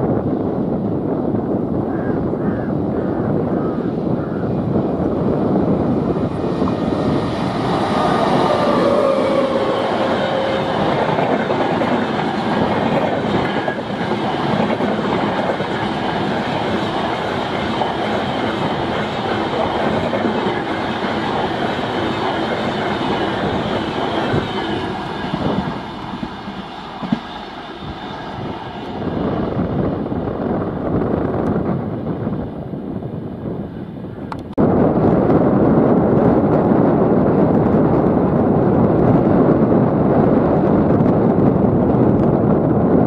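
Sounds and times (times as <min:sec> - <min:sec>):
wheels rushing on track: 0:04.6 - 0:33.7
locomotive whine falling in pitch: 0:05.6 - 0:30.2.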